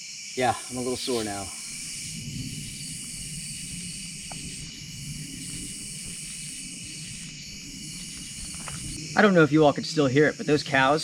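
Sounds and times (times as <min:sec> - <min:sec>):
shrill chorus of night insects: 0:00.0 - 0:11.0
cattle lowing: 0:01.4 - 0:09.0.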